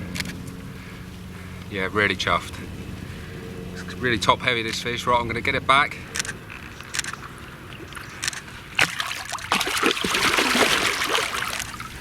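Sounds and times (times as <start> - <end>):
water sloshing and splashing: 6.6 - 12.0.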